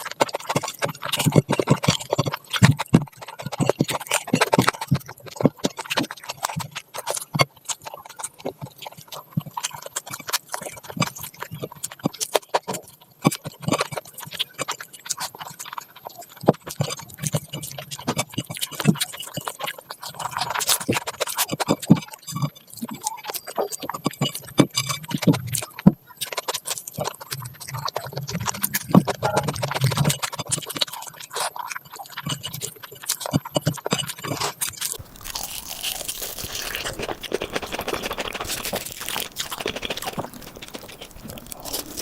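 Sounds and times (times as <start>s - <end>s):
chewing with wet smacks: 0.0s - 42.0s.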